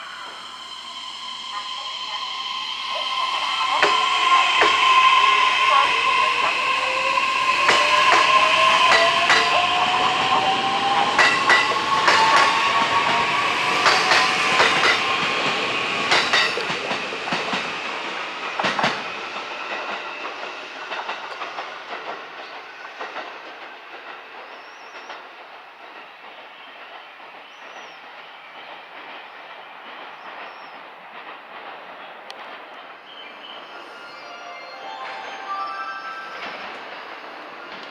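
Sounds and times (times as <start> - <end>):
electric train inverter whine: 0.0 - 22.5.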